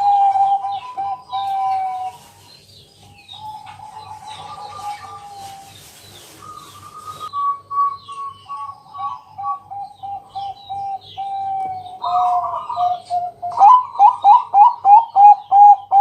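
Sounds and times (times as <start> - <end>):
dove cooing: 0.0 - 16.0
small birds chirping faintly: 0.0 - 16.0.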